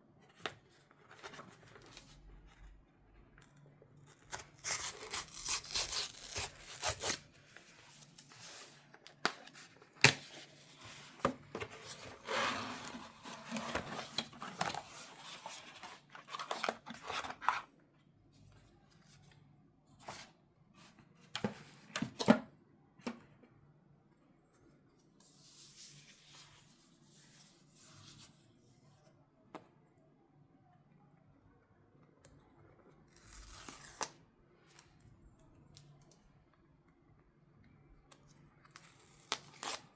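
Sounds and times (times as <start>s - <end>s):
paper packaging tearing and rustling: 4.1s - 7.3s.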